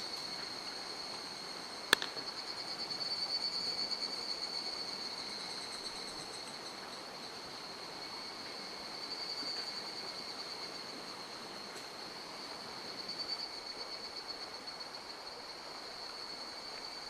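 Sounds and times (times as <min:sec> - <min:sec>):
high pulsing insect trill: 0:00.0 - 0:11.3
sharp click: 0:02.0 - 0:02.2.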